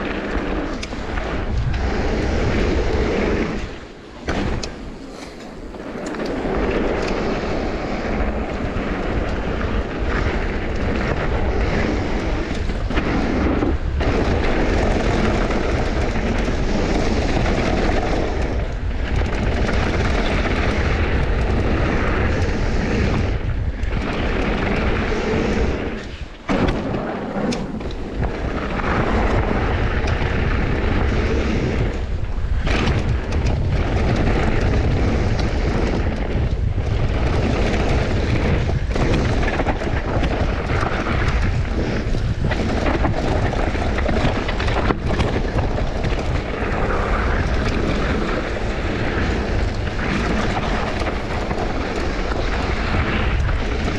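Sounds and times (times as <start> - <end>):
mountain bike rattling on rough trail: 0.0 - 53.9
wind buffeting microphone: 0.0 - 53.9.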